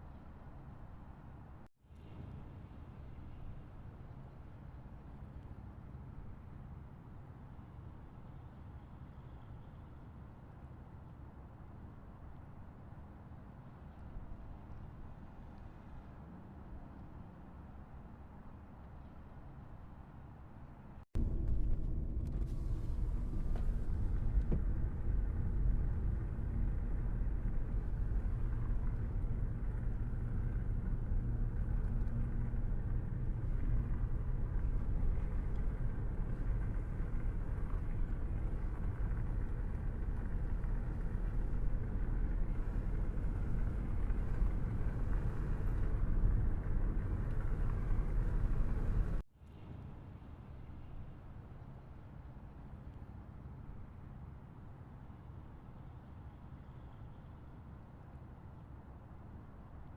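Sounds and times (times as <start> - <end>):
car driving on road: 21.2 - 49.2.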